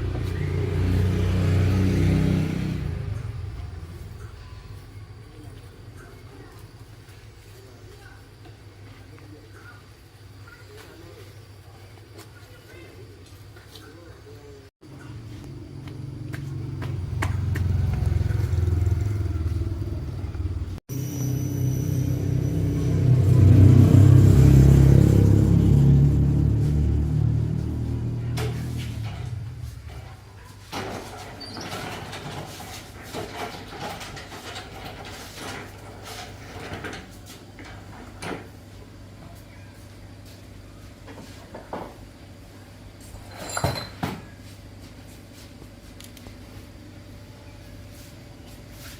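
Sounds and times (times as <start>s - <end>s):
engine low drone: 0.0s - 5.4s, 14.9s - 30.1s.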